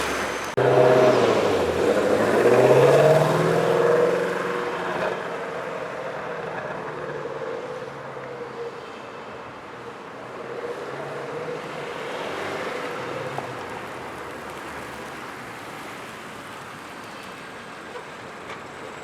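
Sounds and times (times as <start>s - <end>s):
car engine accelerating: 0.0s - 8.0s.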